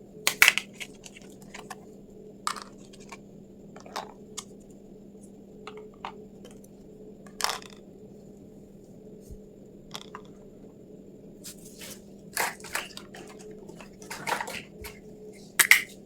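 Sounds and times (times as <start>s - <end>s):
faint steady hum: 0.0s - 16.0s
plastic toy pieces clicking: 0.3s - 1.2s, 15.6s - 15.9s.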